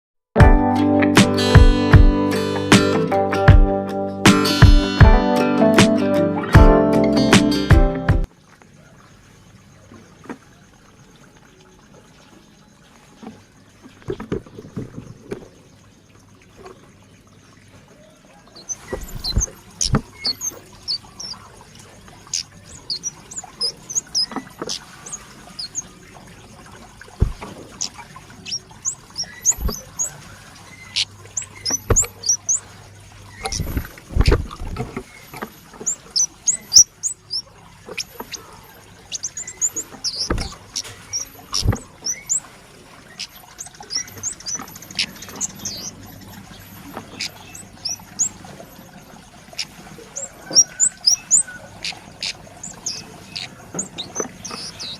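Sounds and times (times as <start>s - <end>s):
high-pitched bird chirps: 18.6s - 21.4s, 22.3s - 25.9s, 27.8s - 30.2s, 30.8s - 32.6s, 33.4s - 33.8s, 35.8s - 38.5s, 39.1s - 42.4s, 43.2s - 46.0s, 47.1s - 48.4s, 49.6s - 54.9s
sharp knocks: 27.2s - 27.6s, 31.7s - 32.1s, 40.2s - 40.6s.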